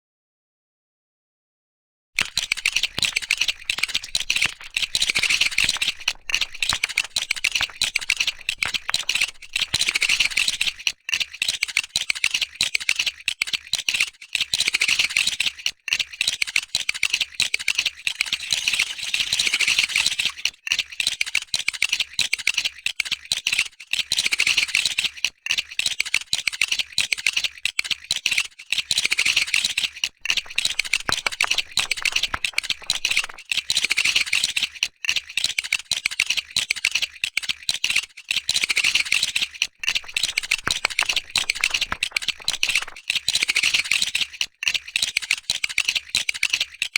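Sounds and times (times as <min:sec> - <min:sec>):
plastic bricks clicking and rattling: 0:02.2 - 0:13.9, 0:28.1 - 0:46.9.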